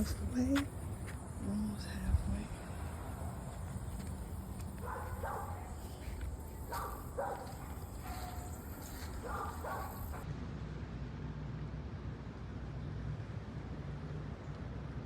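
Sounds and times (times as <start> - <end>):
dog barking: 4.7 - 10.2.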